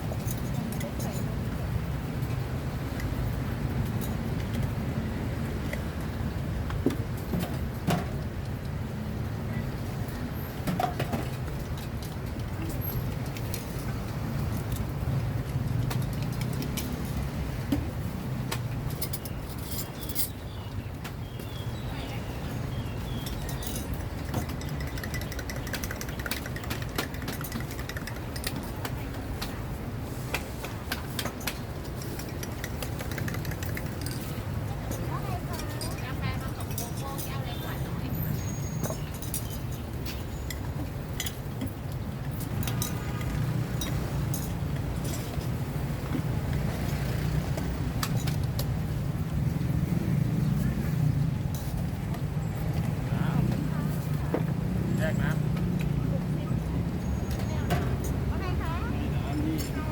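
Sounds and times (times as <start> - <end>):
road traffic rumble: 0.0 - 59.9
cups and utensils clinking: 23.1 - 28.8
sharp clicks and clinks: 23.2 - 29.5, 30.9 - 37.6.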